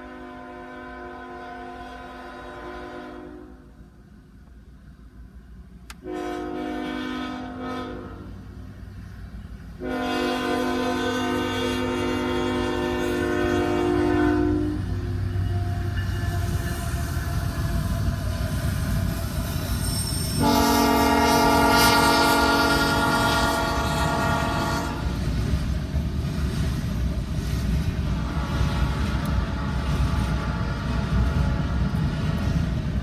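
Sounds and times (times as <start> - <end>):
locomotive air horn blasts: 0.0 - 3.7, 6.0 - 8.5, 9.8 - 19.1, 20.3 - 25.2, 28.1 - 32.2
moving train rumbling: 0.0 - 33.0.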